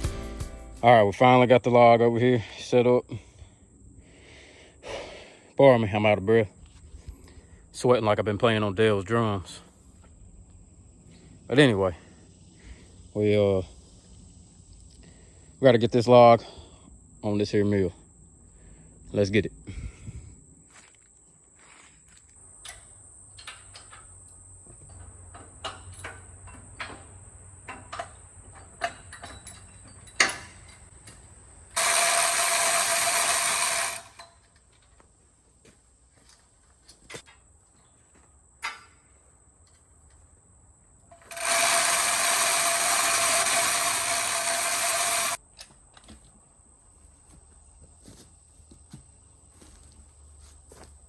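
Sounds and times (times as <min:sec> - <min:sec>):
ratchet clicking and ratcheting: 0:31.8 - 0:34.4, 0:41.1 - 0:45.4.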